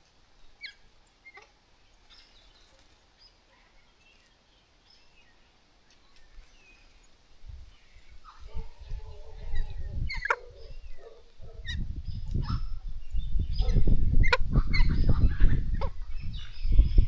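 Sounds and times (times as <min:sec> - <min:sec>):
birds screeching and chattering: 0:07.9 - 0:12.8.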